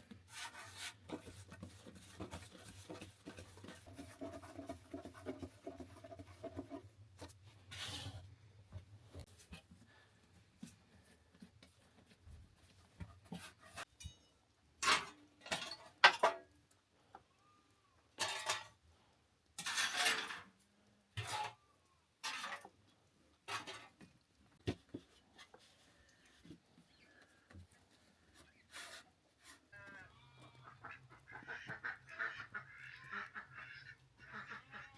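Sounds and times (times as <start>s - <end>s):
scraping and crunching: 22.2s - 27.2s.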